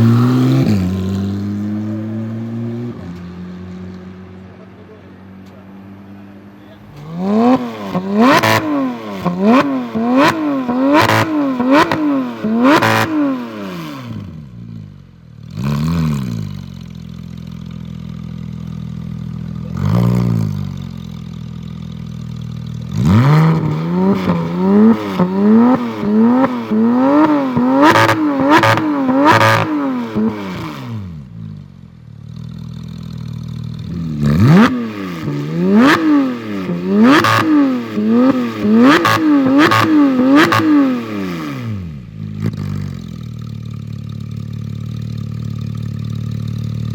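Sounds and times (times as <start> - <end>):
sports car engine revving: 0.0 - 46.9
exhaust cracks: 6.7 - 13.1
car engine idling: 16.4 - 30.6, 31.2 - 34.1, 42.0 - 46.9.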